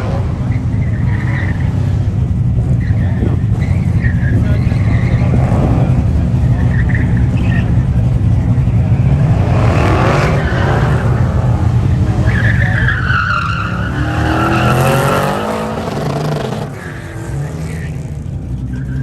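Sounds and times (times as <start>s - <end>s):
car engine revving: 0.0s - 19.0s
tyres squealing: 10.4s - 18.0s.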